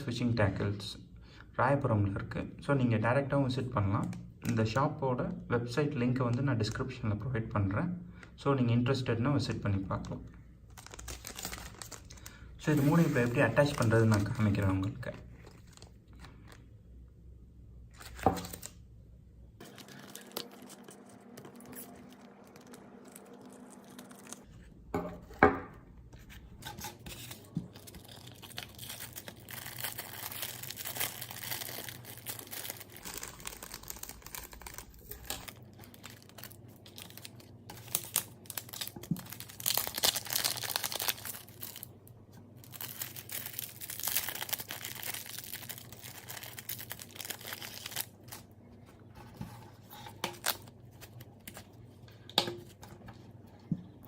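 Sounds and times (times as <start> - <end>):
plastic packaging tearing and crinkling: 10.0 - 16.6, 17.9 - 18.8, 19.6 - 24.5, 26.6 - 42.0, 42.6 - 48.6, 49.8 - 51.8.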